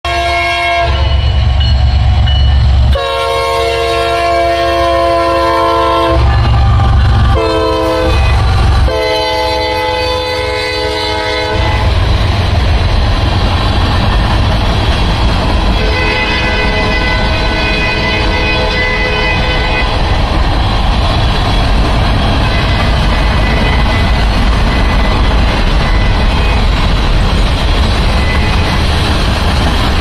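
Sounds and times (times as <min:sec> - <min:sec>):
locomotive horn blasts: 0:00.1 - 0:01.4, 0:02.9 - 0:12.0, 0:15.8 - 0:20.0, 0:22.4 - 0:25.0
locomotive engines rumbling: 0:00.1 - 0:30.0
freight cars rolling by: 0:09.6 - 0:30.0.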